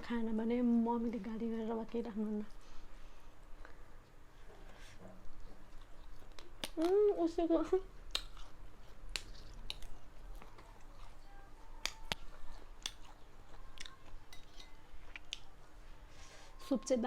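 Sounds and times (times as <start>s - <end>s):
person chewing food: 3.4s - 7.2s, 7.9s - 16.1s
wet mouth clicks and smacks: 8.0s - 10.0s, 11.8s - 13.2s, 15.1s - 15.5s.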